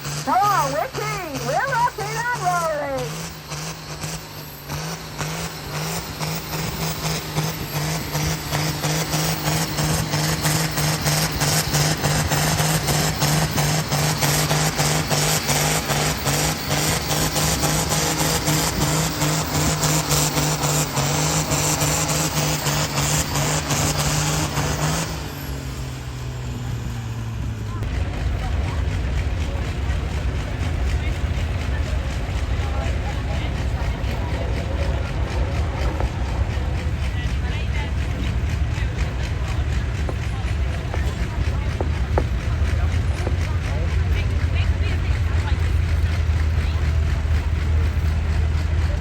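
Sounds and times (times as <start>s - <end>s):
tractor engine droning under load: 0.0s - 49.0s.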